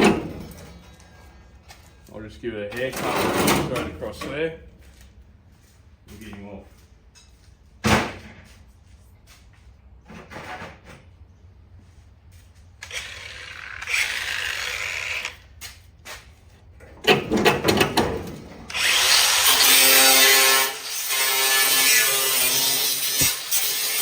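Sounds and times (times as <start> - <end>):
metallic clanks and rattles: 0.0 - 1.4, 16.8 - 18.7
power tool cutting sheet metal: 12.8 - 15.4, 18.7 - 24.0.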